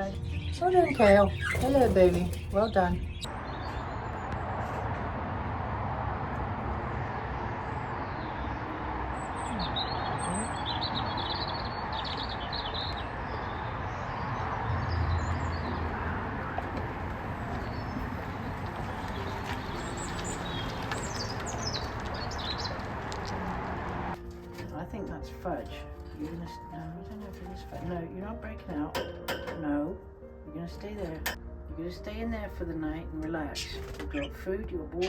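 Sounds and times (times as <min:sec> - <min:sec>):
budgerigars chirping: 0:00.0 - 0:03.8, 0:17.3 - 0:22.9, 0:33.6 - 0:34.4.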